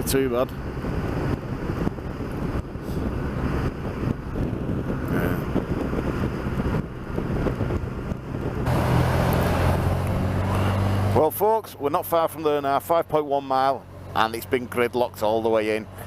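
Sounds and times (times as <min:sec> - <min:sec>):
wind noise on microphone: 0:00.0 - 0:11.2.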